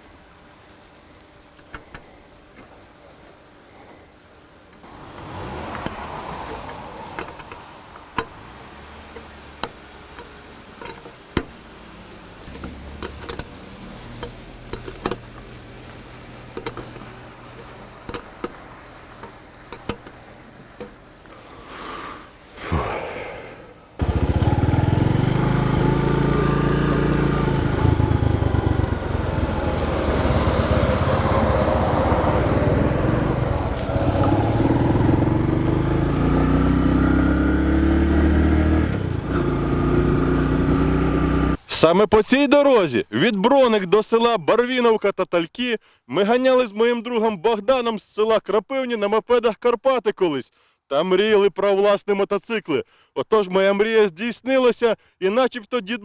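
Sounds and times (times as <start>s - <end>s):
light clicks and knocks: 5.8s - 8.4s, 14.2s - 21.0s
motorcycle engine revving: 24.0s - 41.6s.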